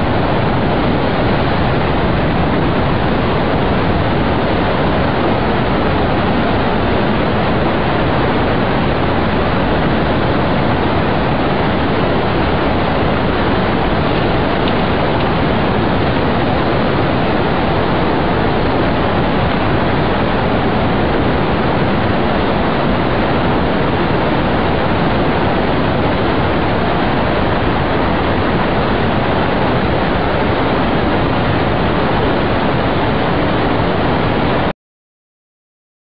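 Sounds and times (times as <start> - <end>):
loud rushing noise: 0.0 - 34.7.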